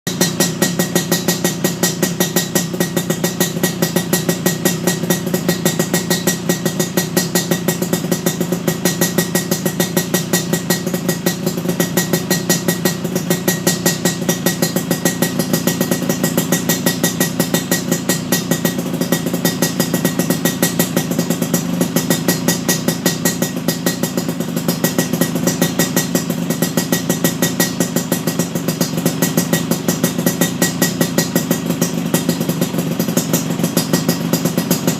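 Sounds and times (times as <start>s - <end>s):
two-stroke motorcycle engine idling: 0.1s - 34.9s.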